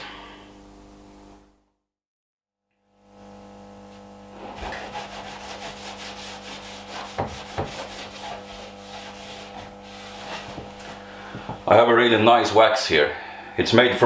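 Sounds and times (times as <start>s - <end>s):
cloth rubbing on wood: 3.8s - 11.1s.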